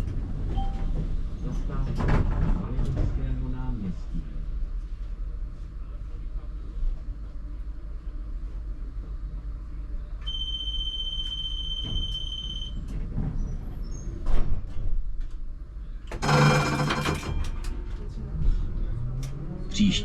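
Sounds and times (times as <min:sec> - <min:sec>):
constant low rumble: 0:00.0 - 0:20.0
clunks: 0:16.0 - 0:18.2
loud rattling clatter: 0:16.2 - 0:18.2.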